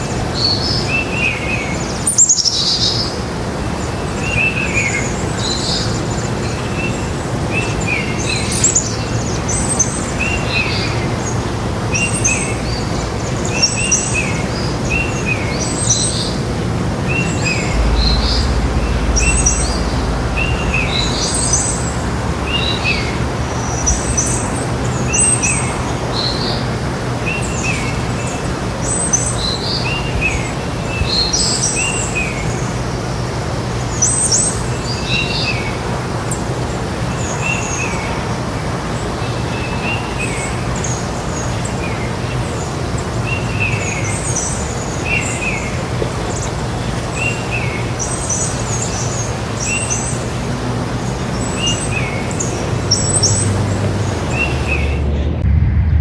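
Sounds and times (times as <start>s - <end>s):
birds chirping: 0.0s - 35.8s, 36.8s - 55.4s
low hum: 16.5s - 24.1s, 54.1s - 56.0s.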